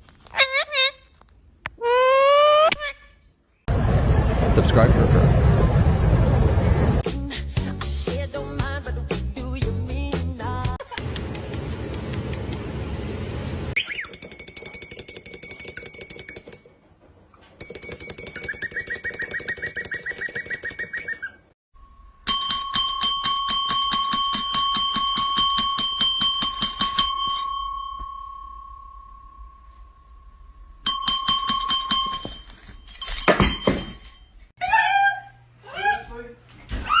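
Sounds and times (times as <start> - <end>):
small bell jingling: 22.2 - 30.1, 30.9 - 34.4.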